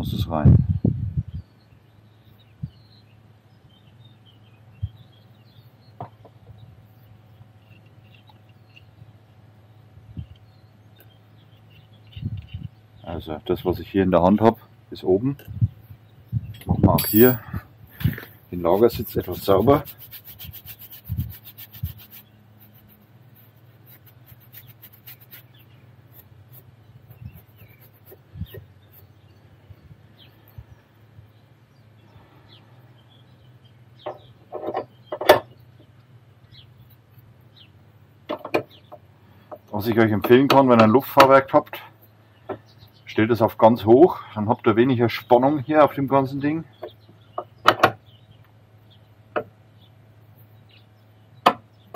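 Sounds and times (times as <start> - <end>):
low steady hum: 0.0 - 51.9
rapid scrubbing by hand: 18.6 - 28.3.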